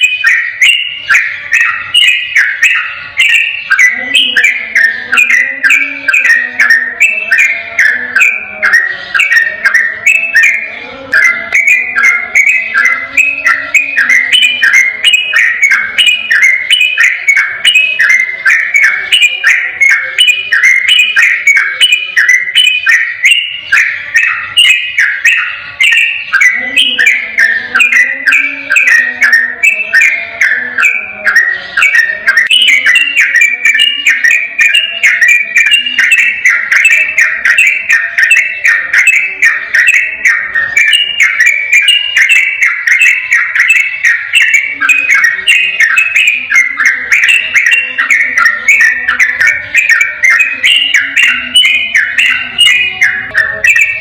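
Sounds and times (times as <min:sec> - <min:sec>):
bird singing fast whistled notes: 0:00.0 - 0:10.7.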